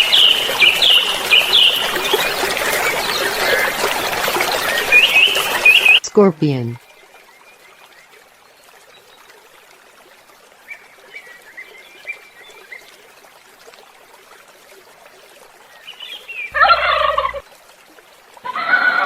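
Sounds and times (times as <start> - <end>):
turkey gobbling: 16.6 - 17.4.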